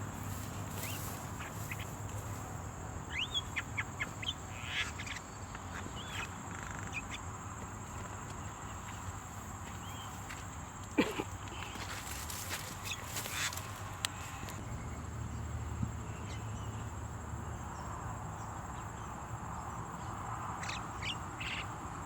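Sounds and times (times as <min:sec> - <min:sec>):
high insect drone: 0:00.0 - 0:22.0
birds chirping and whistling: 0:03.1 - 0:07.2.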